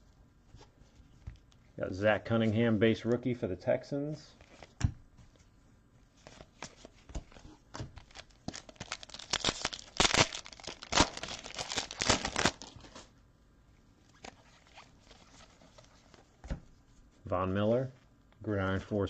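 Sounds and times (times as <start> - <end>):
wrapper tearing and crinkling: 8.0 - 13.1.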